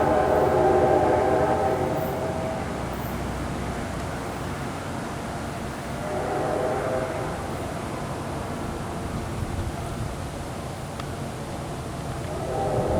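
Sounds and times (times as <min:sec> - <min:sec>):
locomotive air horn chord: 0:00.0 - 0:03.4, 0:05.8 - 0:08.0, 0:12.2 - 0:12.9
train rumbling on rails: 0:00.0 - 0:12.9.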